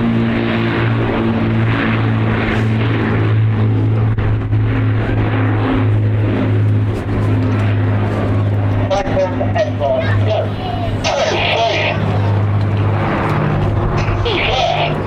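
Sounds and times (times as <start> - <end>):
propeller aircraft engines droning: 0.0 - 15.0.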